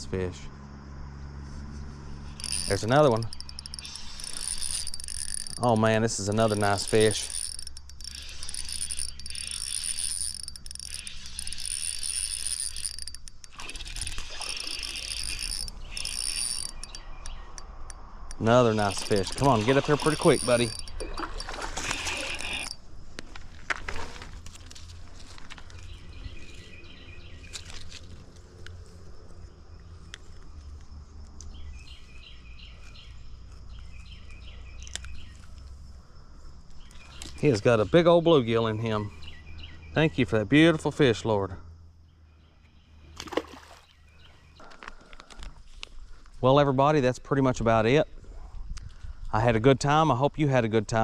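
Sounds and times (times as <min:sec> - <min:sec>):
songbird chirping: 0:00.0 - 0:23.2, 0:24.5 - 0:46.6
spinning reel being wound: 0:02.3 - 0:22.8
sharp clicks: 0:02.4 - 0:21.6.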